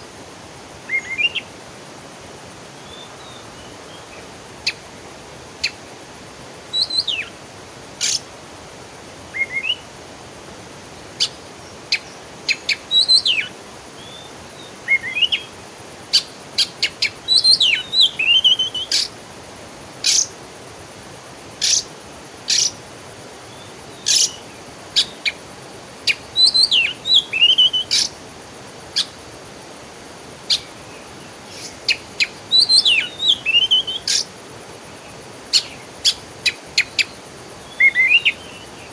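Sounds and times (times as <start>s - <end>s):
faint hiss: 0.0s - 38.9s
songbirds singing: 0.9s - 1.5s, 2.8s - 4.9s, 6.7s - 7.4s, 8.0s - 8.3s, 9.3s - 9.9s, 11.0s - 19.2s, 20.0s - 20.4s, 21.6s - 29.4s, 30.4s - 38.9s.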